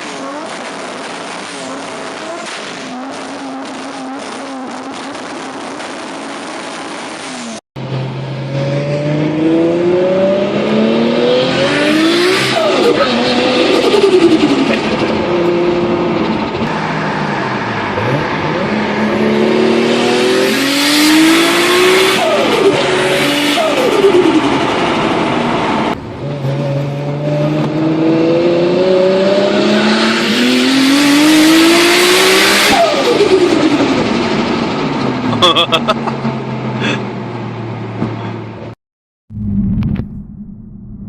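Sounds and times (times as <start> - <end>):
car engine accelerating hard: 0.0 - 38.5.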